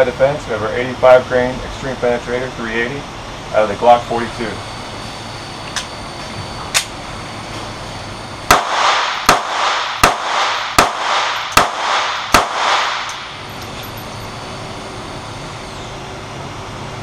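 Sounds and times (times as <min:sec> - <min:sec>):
pistol shots with echo: 0:08.5 - 0:13.4.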